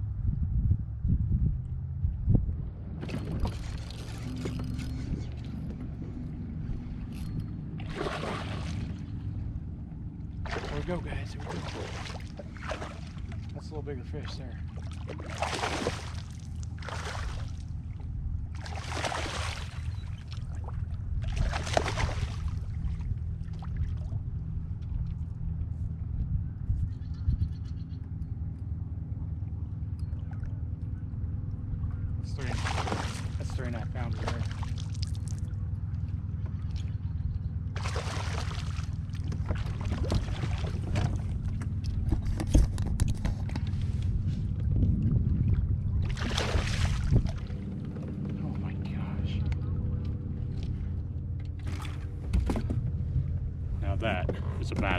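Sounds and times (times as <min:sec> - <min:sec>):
low rumble: 0:00.0 - 0:54.9
fish thrashing in water: 0:07.8 - 0:09.2, 0:10.4 - 0:13.5, 0:14.6 - 0:25.0, 0:32.3 - 0:48.3, 0:51.6 - 0:52.6
clicks and knocks on kayak: 0:40.8 - 0:44.1.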